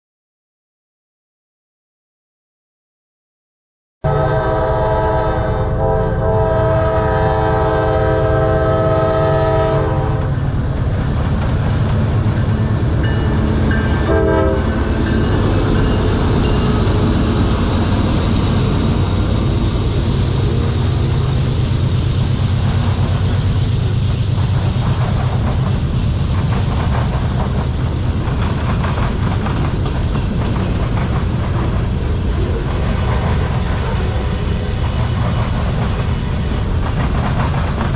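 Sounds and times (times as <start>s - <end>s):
locomotive horn: 4.1s - 10.4s, 13.2s - 17.6s
locomotive engine rumble: 5.8s - 37.9s
freight cars clattering on rails: 10.3s - 37.9s.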